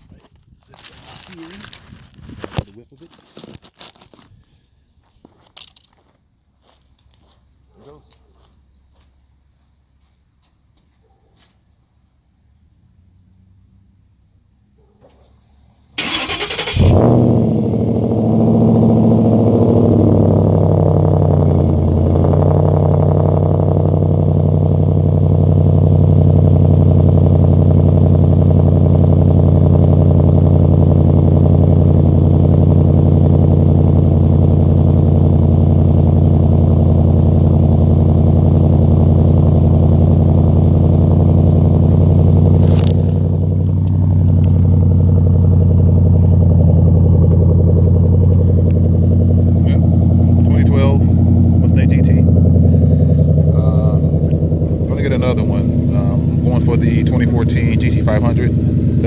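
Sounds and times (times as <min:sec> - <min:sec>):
car engine idling: 0:15.5 - 0:59.0.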